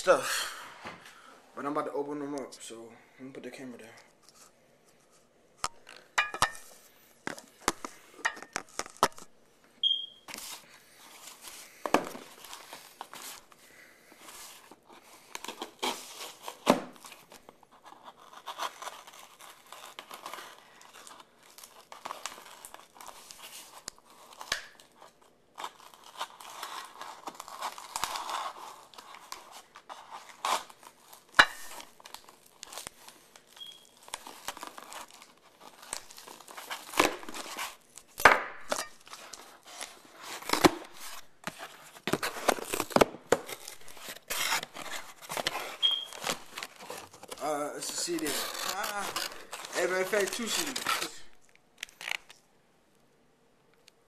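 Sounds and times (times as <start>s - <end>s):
packaging tearing and crinkling: 8.5s - 9.3s, 10.3s - 13.6s, 14.2s - 52.5s.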